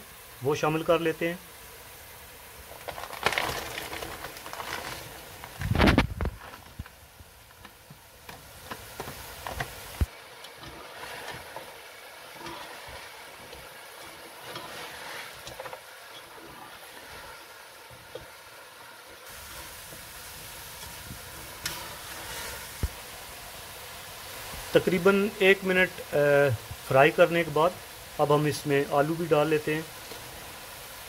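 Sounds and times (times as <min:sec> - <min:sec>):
vegetables frying sizzle: 0:00.0 - 0:31.0
spoon stirring scrapes: 0:10.5 - 0:18.3, 0:20.6 - 0:22.9.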